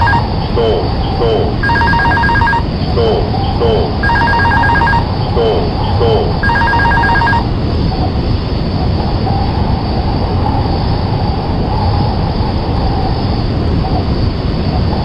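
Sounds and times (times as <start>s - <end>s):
faint wavering tone: 0.0s - 7.4s
rapid electronic beeping: 0.0s - 7.4s
loud steady rumbling: 0.0s - 14.8s.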